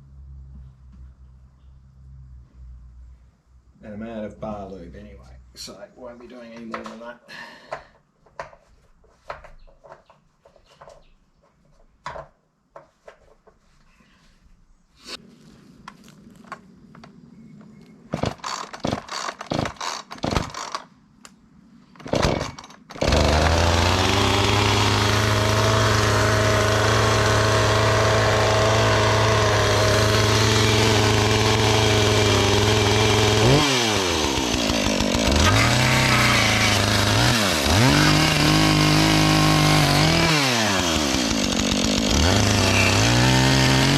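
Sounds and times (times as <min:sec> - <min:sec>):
knocks and clatters: 0:08.2 - 0:13.6
chainsaw running: 0:18.2 - 0:20.9, 0:22.0 - 0:43.9.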